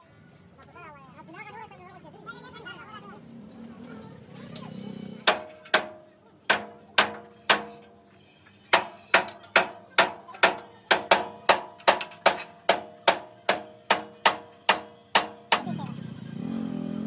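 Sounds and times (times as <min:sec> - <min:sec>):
hammer striking steel: 0:05.2 - 0:15.9.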